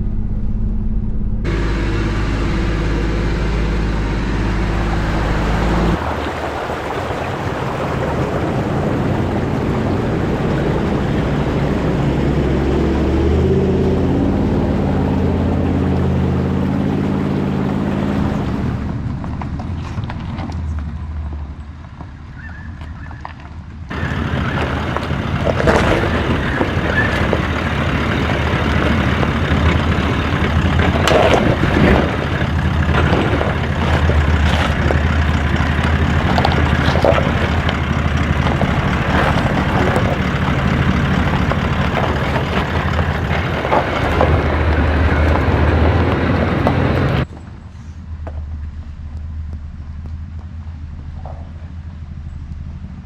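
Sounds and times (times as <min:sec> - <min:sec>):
vehicle engine drone: 0:00.0 - 0:22.0, 0:23.9 - 0:53.0
knocks and rattles from bumps: 0:23.9 - 0:47.2.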